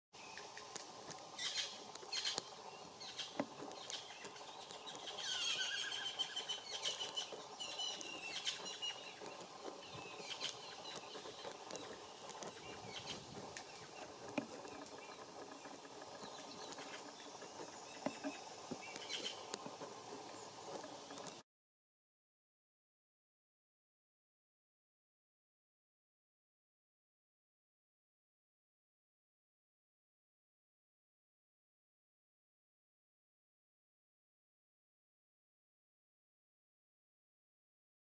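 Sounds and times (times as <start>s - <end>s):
songbirds chirping: 0.2s - 21.4s.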